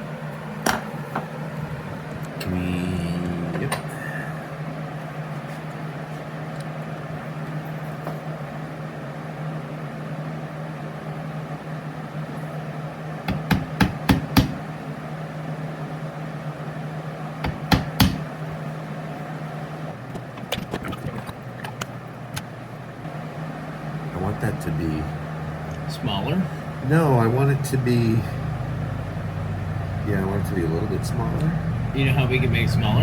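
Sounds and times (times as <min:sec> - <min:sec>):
machine hum: 0:00.0 - 0:33.0
hammer striking metal chisel: 0:13.3 - 0:14.6, 0:17.4 - 0:18.2.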